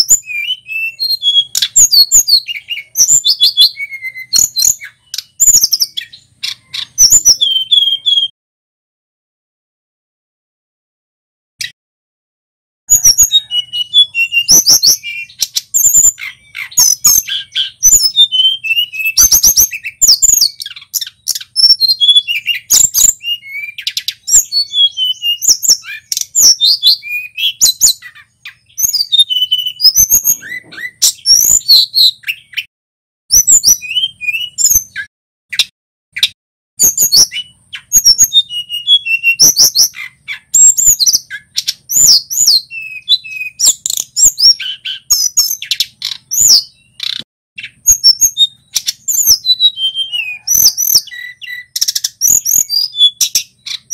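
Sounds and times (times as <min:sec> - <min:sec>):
songbird singing: 0:00.0 - 0:08.3, 0:12.9 - 0:32.7, 0:33.3 - 0:53.9.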